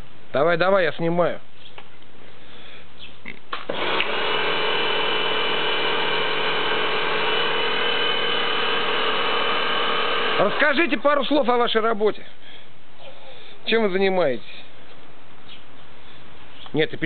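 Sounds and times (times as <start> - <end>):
pressure washer running: 3.7 - 11.0.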